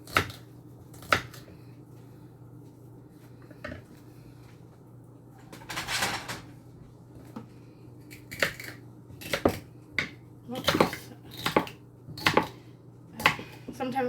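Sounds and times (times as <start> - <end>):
knife chopping celery on board: 0.0 - 1.5, 8.3 - 12.6.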